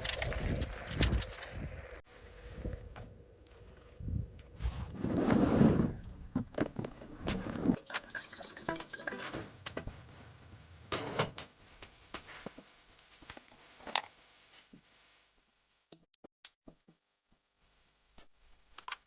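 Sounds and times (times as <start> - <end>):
low rumble: 0.0 - 6.5, 9.5 - 12.2.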